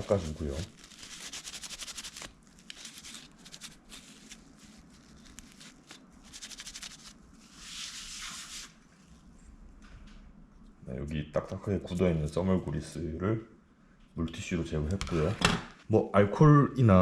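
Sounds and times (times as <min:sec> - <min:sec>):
wet wipe rubbing: 0:00.0 - 0:09.1.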